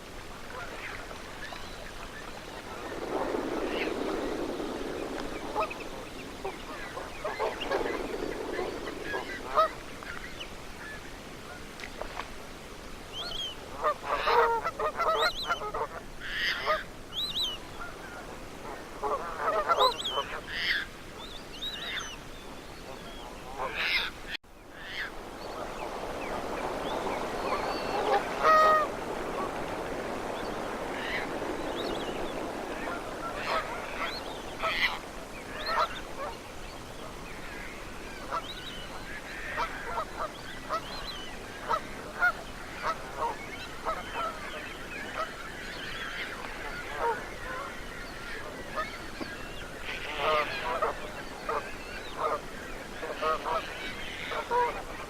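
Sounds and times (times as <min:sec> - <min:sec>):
steady rushing noise: 0:01.3 - 0:10.9, 0:24.6 - 0:38.4
geese honking: 0:02.7 - 0:10.2, 0:24.8 - 0:36.4, 0:49.9 - 0:52.4, 0:53.0 - 0:55.0.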